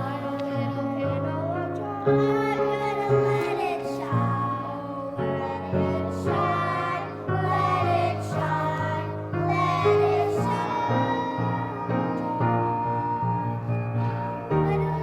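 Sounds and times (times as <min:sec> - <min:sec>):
choir singing: 0:00.0 - 0:15.0
instrumental accompaniment: 0:05.4 - 0:15.0.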